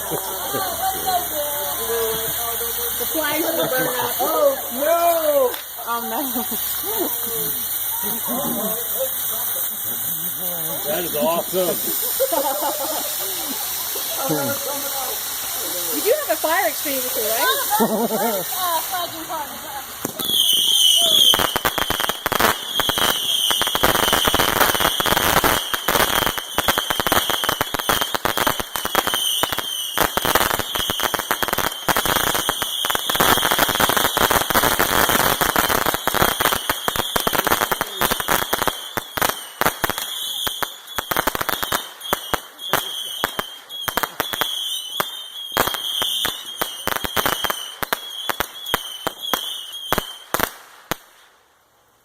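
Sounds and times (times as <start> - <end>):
firework high whistle: 0.0 - 10.1, 20.0 - 50.5
firework crackling: 0.0 - 52.0.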